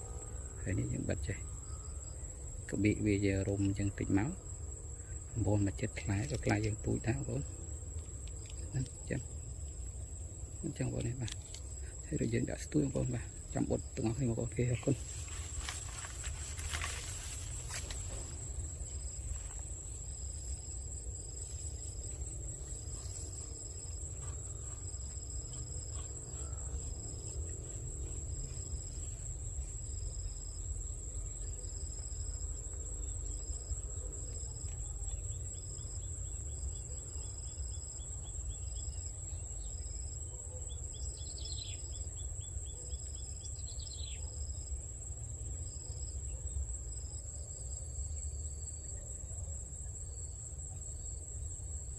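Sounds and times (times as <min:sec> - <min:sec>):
insect chirp: 0:00.0 - 0:51.9
insect trill: 0:00.0 - 0:51.9.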